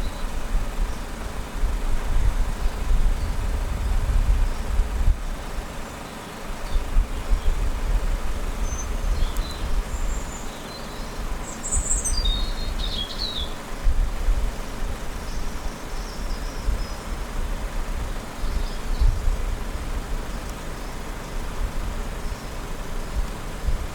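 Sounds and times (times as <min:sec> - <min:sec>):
birds chirping: 0:08.4 - 0:13.7, 0:14.5 - 0:17.3.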